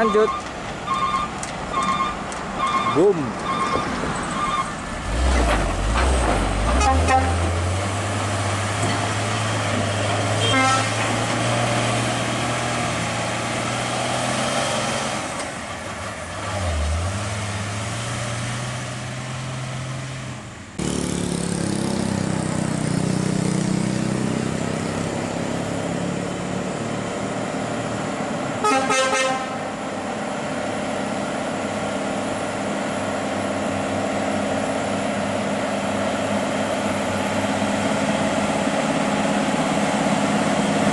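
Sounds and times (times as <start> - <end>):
diesel trucks passing: 0.0 - 40.9
air horn toot: 6.7 - 7.6, 10.4 - 11.0, 28.6 - 29.6
loud horn blast: 6.7 - 7.6, 10.3 - 11.2, 28.6 - 29.7.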